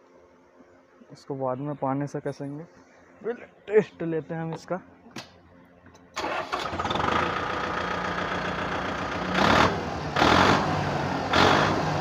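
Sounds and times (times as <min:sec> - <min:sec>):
diesel tractor engine idling: 0:06.2 - 0:12.0.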